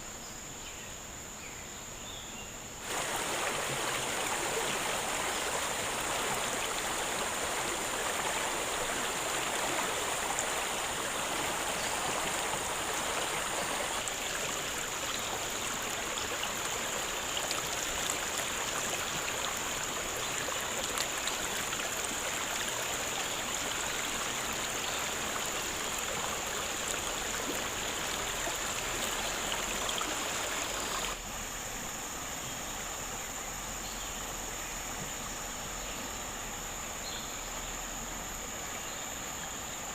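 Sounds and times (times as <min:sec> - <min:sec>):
high insect buzz: 0:02.8 - 0:39.8
flowing stream: 0:02.8 - 0:39.9.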